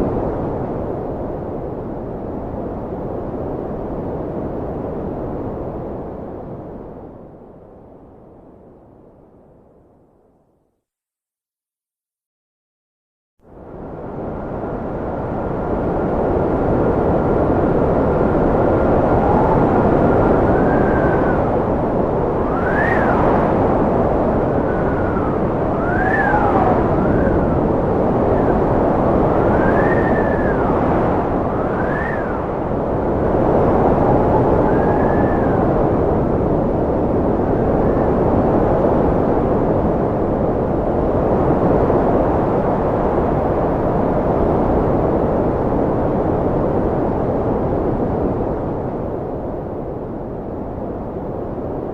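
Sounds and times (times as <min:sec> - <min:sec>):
wind rushing: 0:15.8 - 0:51.9
thin wind whistle: 0:18.7 - 0:38.9.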